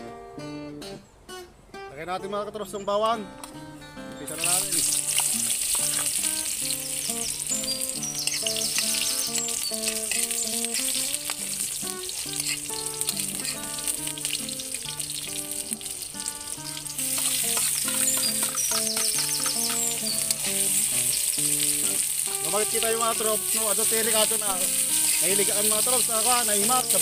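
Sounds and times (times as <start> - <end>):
background music melody: 0.0 - 27.0
garlic sizzling in hot oil: 4.3 - 27.0
metal spoon stirring in wok: 8.2 - 15.4.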